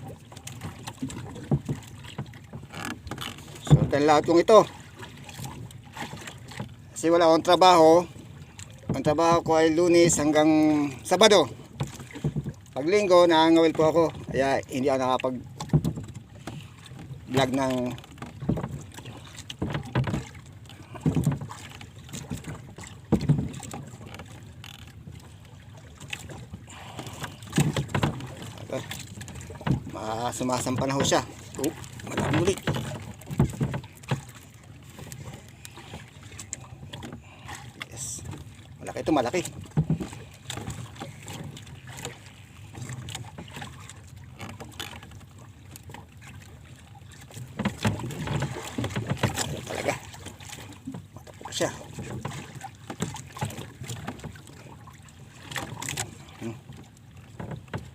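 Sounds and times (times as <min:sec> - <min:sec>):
water lapping against boat hull: 0:00.0 - 0:57.9
low knocks and thumps: 0:19.5 - 0:21.6, 0:22.2 - 0:24.4, 0:27.3 - 0:34.4.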